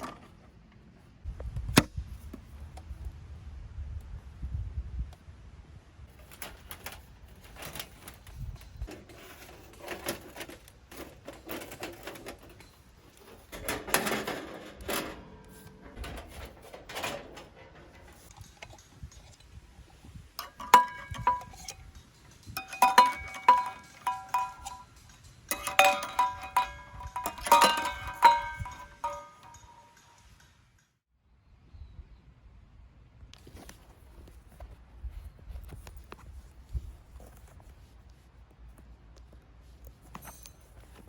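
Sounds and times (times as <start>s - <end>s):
objects rustling and clattering: 6.1s - 30.7s, 33.4s - 41.0s
light clinks: 6.8s - 30.9s.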